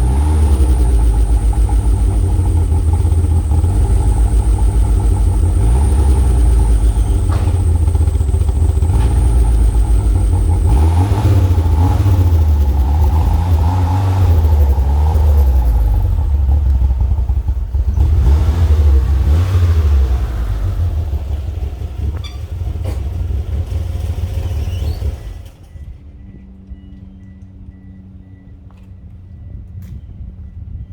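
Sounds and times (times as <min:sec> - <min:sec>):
high whine: 0:00.0 - 0:18.2
car engine running: 0:00.0 - 0:25.6.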